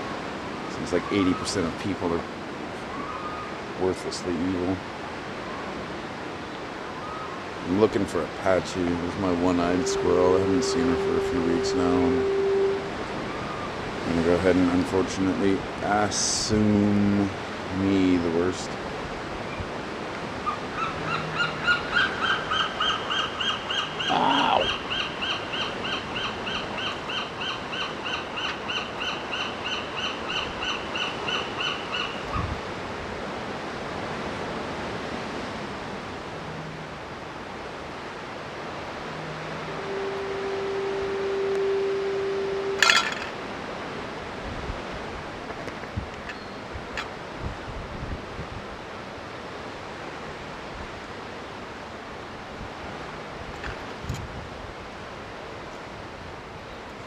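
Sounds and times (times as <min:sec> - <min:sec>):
surf: 0:00.0 - 0:30.8, 0:32.4 - 0:54.9
wind: 0:00.0 - 0:57.0
steady low tone: 0:07.7 - 0:14.9, 0:38.2 - 0:43.5
young gull piping calls: 0:09.2 - 0:13.8, 0:20.5 - 0:32.2, 0:39.0 - 0:43.3.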